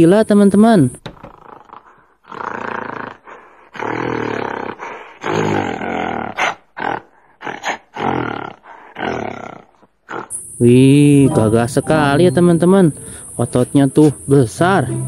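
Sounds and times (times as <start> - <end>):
gorilla roaring and grunting: 1.2 - 10.4.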